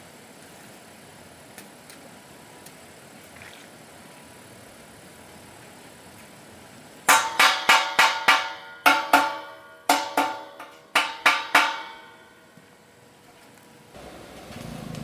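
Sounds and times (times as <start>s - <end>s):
steel struck with ringing blows: 7.1s - 12.5s.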